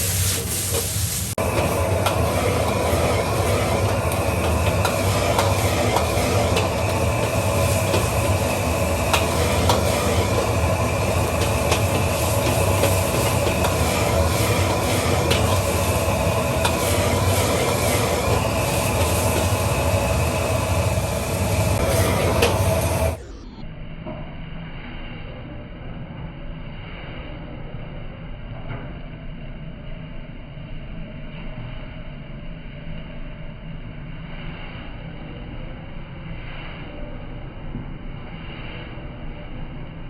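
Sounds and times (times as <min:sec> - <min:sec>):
food sizzling: 0:00.0 - 0:23.2
gas wok burner: 0:00.0 - 0:23.3.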